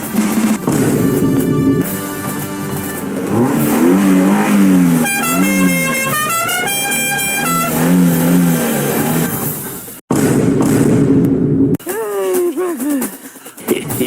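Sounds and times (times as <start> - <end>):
action soundtrack music: 0.0 - 8.5
comedic honking sound effects: 0.6 - 9.2.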